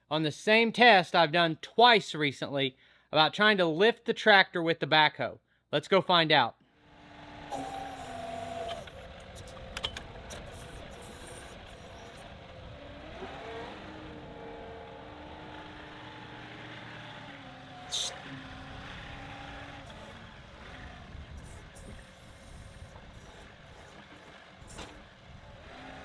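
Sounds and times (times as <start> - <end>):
hydraulics whining: 6.7 - 26.0
tractor diesel engine running: 6.8 - 26.0.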